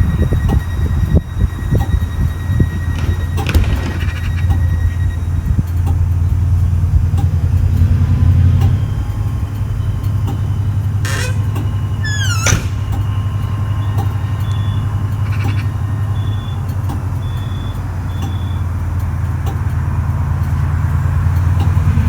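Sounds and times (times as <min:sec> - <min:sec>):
high squeals: 0:00.0 - 0:06.3, 0:08.8 - 0:18.7
train engine humming: 0:00.0 - 0:22.0.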